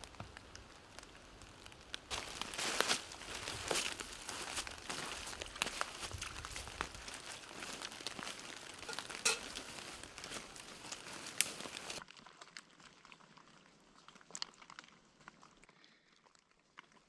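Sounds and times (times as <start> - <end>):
dense crackling and rustling: 0.3 - 12.0.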